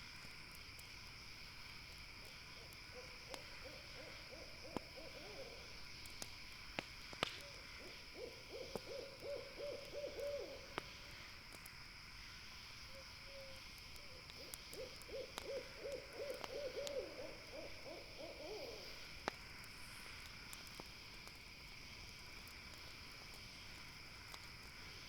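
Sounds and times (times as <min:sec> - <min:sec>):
campfire crackling: 0:00.0 - 0:25.0
owl hooting: 0:03.0 - 0:05.6, 0:07.4 - 0:10.6, 0:14.4 - 0:19.0.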